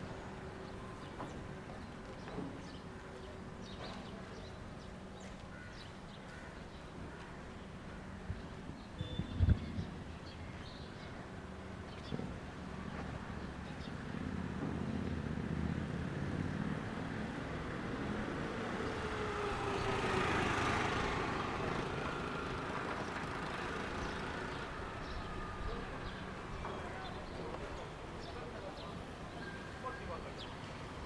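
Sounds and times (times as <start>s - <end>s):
vehicle passing by: 13.3s - 26.2s.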